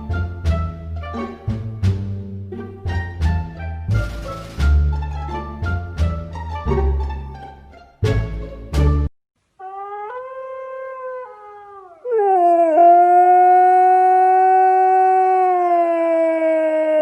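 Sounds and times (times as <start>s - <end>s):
dog howling: 9.6s - 17.0s.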